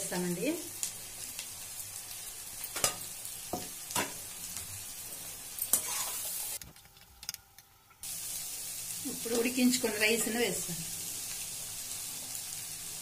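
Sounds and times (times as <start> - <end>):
food sizzling in a pan: 0.0 - 6.6, 8.0 - 13.0
metal spatula scraping a pan: 5.7 - 6.4.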